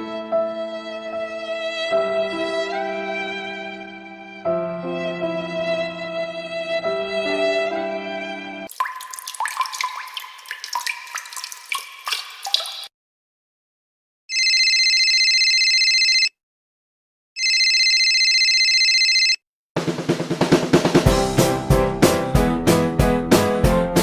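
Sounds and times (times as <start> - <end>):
water dripping and splashing: 8.7 - 12.9
telephone ringing: 14.3 - 16.4, 17.4 - 19.4.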